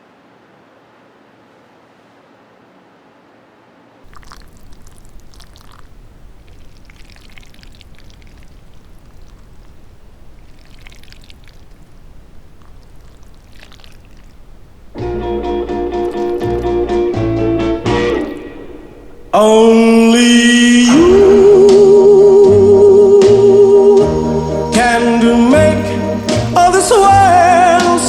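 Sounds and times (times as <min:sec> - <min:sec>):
low steady hiss: 0:00.0 - 0:28.0
liquid pouring: 0:04.0 - 0:22.3.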